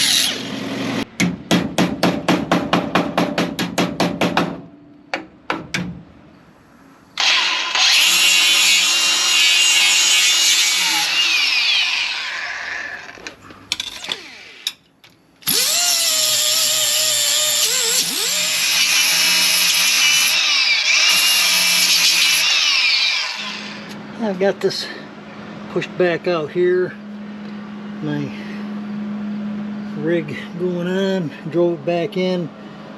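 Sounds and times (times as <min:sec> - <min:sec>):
angle grinder cutting metal: 0:00.0 - 0:01.0, 0:07.2 - 0:14.8, 0:15.4 - 0:24.0
sharp knocks: 0:01.2 - 0:06.0.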